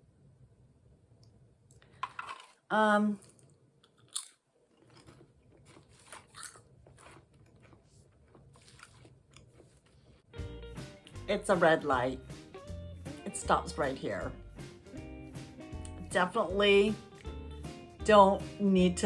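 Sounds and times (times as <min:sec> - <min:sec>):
chewing potato chips: 0:03.2 - 0:10.1.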